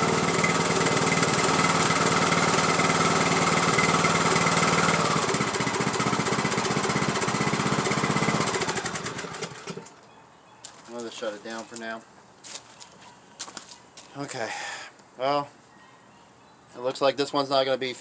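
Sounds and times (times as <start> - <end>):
lawn tractor engine running: 0.0 - 10.0.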